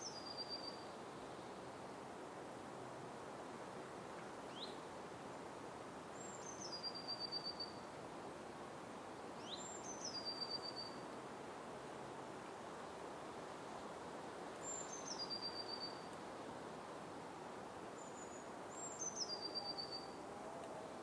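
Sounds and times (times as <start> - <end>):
forest ambience hiss: 0.0 - 21.0.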